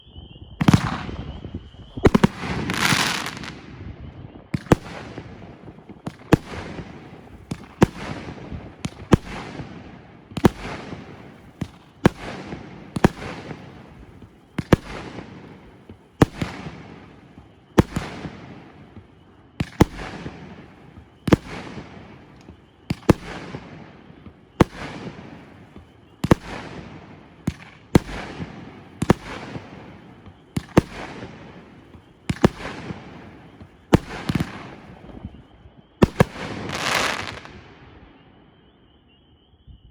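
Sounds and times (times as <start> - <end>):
firework shots with crackling: 0.4 - 38.8
loud firework hissing burst: 0.6 - 3.6, 36.5 - 37.5.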